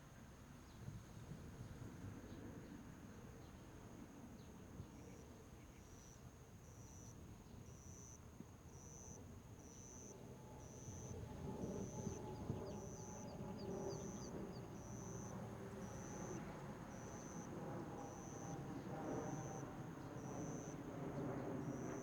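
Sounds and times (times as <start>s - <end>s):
insect chirping: 5.9s - 20.8s, 21.4s - 22.0s.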